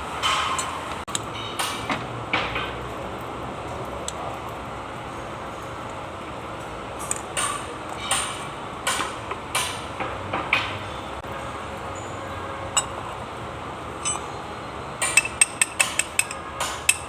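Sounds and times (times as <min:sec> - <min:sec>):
metal tools clinking: 0:12.7 - 0:13.2, 0:13.9 - 0:14.4, 0:15.0 - 0:17.0.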